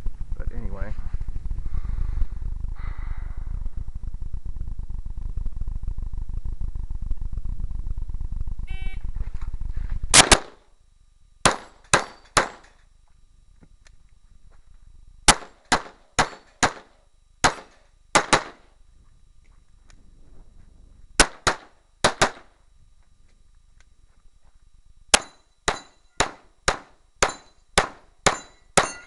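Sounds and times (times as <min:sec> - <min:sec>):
low rumble: 0:00.0 - 0:10.2
shot timer beep: 0:08.7 - 0:09.0
pistol shots: 0:10.2 - 0:10.6, 0:11.4 - 0:12.6, 0:15.3 - 0:18.6, 0:21.2 - 0:22.5, 0:25.1 - 0:29.0.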